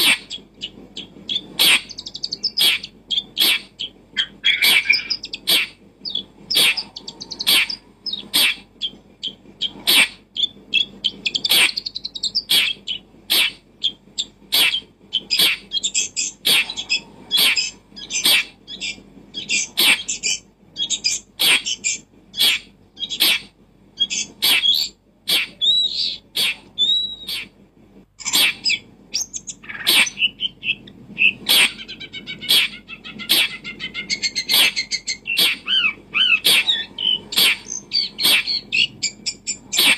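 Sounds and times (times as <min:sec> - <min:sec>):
whistled bird calls: 0:00.0 - 0:27.5, 0:28.2 - 0:39.9
birds chirping: 0:00.0 - 0:27.6, 0:28.2 - 0:39.9.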